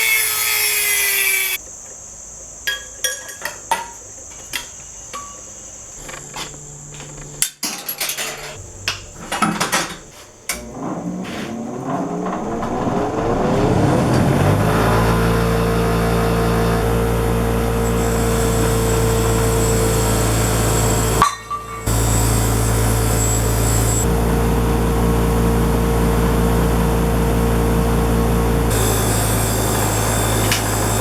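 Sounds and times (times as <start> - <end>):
power tool motor running: 0.0 - 1.6, 10.6 - 31.0
metal knocks and clanks: 21.1 - 24.1.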